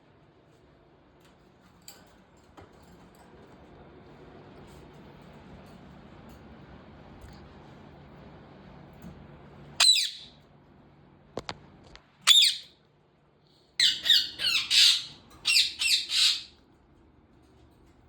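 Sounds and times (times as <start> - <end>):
parakeet squawking harshly: 9.8 - 10.3, 12.3 - 12.7, 13.8 - 16.6.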